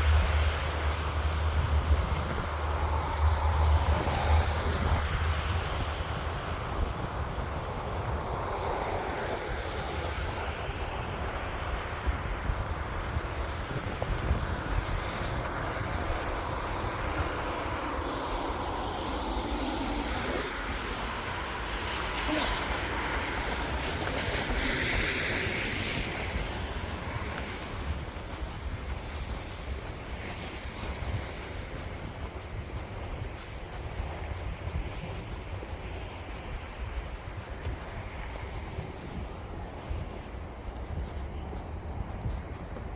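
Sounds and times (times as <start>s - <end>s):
wind buffeting microphone: 0.0s - 42.9s
hiss: 17.2s - 27.4s.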